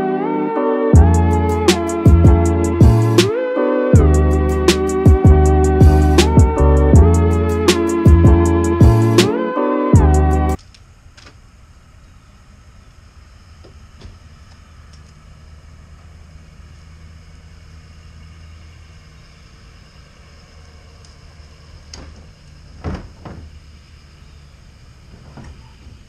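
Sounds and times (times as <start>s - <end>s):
pickup truck engine hum: 1.0s - 9.3s, 10.0s - 26.0s
sharp knocks: 22.8s - 23.5s.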